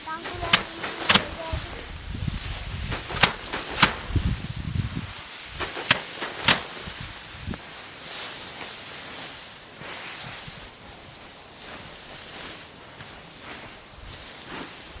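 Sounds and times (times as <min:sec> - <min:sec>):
rice stalks rustling: 0:00.0 - 0:15.0
stalks snapping: 0:00.2 - 0:01.7, 0:02.8 - 0:04.4, 0:05.6 - 0:07.6.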